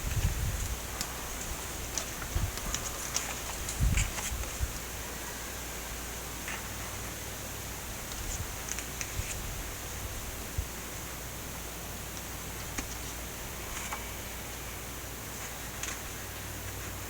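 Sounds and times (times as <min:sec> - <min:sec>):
background hiss: 0:00.0 - 0:17.0
book pages rustling: 0:01.0 - 0:04.8.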